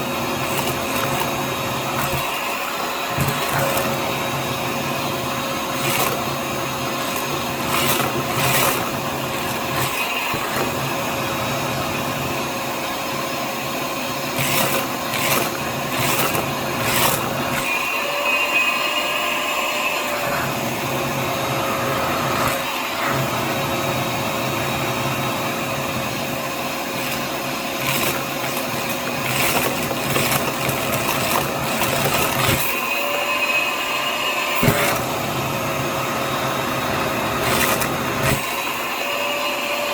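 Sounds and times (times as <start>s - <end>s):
vacuum cleaner running: 0.0s - 39.9s
beads clattering in vacuum: 0.3s - 4.4s, 5.6s - 11.0s, 14.3s - 17.8s, 26.9s - 33.1s, 36.8s - 38.7s.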